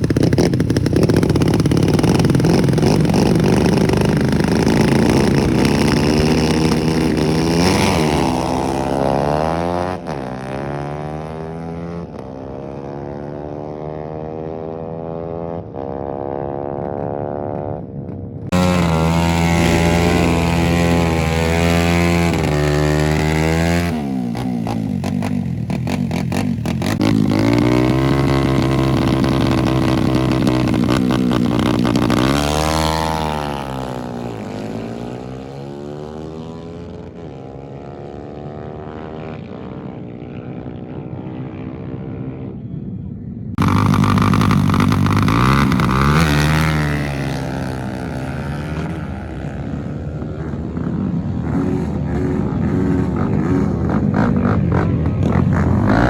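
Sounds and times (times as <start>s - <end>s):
loud engine revving: 0.0s - 12.1s, 18.5s - 35.3s, 43.6s - 49.4s, 51.5s - 56.0s
motorcycle engine passing: 0.0s - 42.6s, 43.6s - 56.0s.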